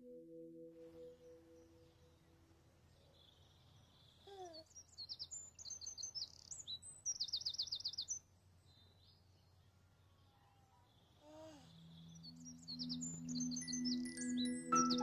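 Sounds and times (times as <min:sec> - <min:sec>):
songbirds chirping: 0:00.0 - 0:15.0
bird trill: 0:03.0 - 0:09.2, 0:11.0 - 0:15.0.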